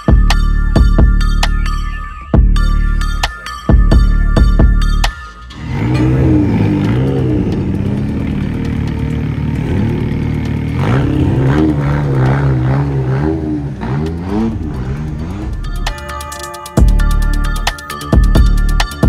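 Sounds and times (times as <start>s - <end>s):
car engine revving hard: 5.5s - 15.8s
exhaust crackles: 5.5s - 16.0s.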